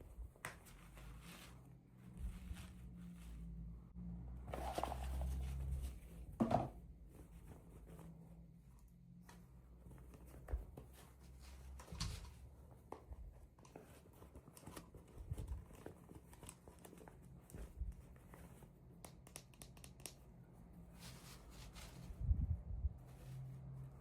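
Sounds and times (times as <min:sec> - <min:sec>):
small clicks and taps: 0:19.0 - 0:20.3.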